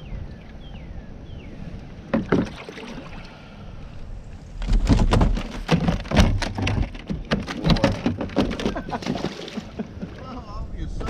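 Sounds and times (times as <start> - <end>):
fish thrashing against kayak hull: 4.5 - 10.2.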